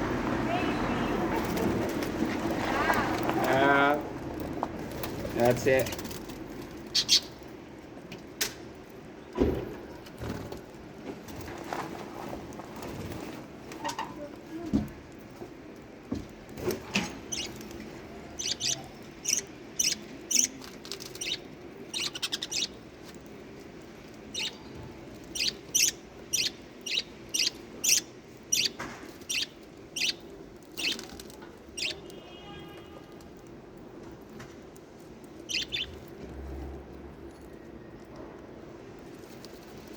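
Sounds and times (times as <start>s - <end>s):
lovebirds making faint sounds: 4.3s - 8.0s, 12.9s - 39.9s
birds chirping: 5.4s - 8.0s, 17.0s - 34.3s, 35.1s - 36.2s.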